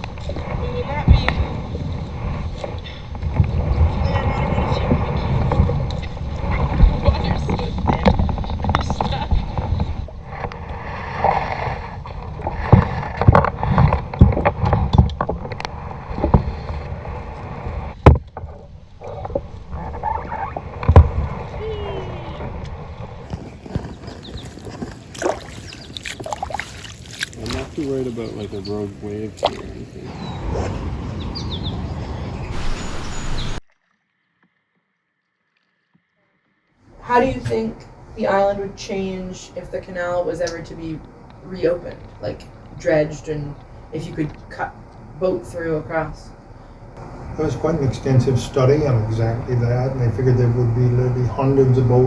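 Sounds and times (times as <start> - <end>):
paddle splashes: 24.4 - 29.8
bird chirping: 25.5 - 26.4, 28.1 - 33.6
low rumble: 36.9 - 52.0.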